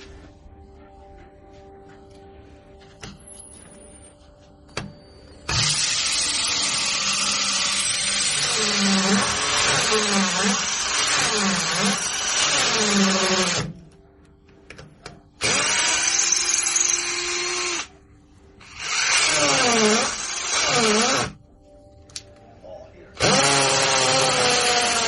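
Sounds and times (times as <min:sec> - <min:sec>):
electric power drill running: 0:05.5 - 0:13.8, 0:15.4 - 0:17.9, 0:18.6 - 0:21.4, 0:23.2 - 0:25.0.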